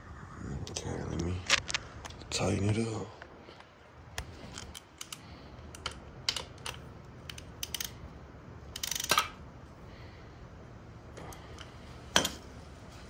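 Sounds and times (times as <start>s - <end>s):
socket ratchet clicking: 4.6s - 8.0s, 8.7s - 9.4s.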